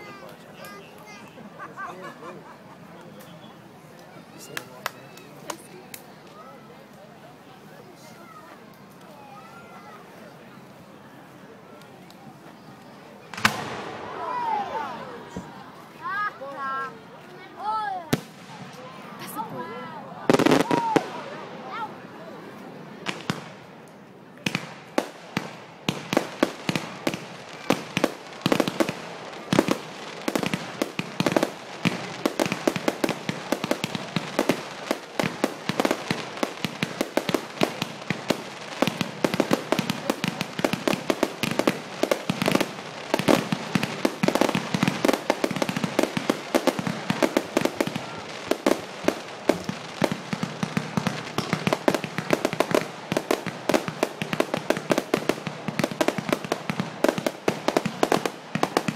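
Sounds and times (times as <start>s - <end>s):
fireworks bangs and cracks: 12.1s - 16.3s, 17.6s - 21.9s, 23.0s - 58.9s.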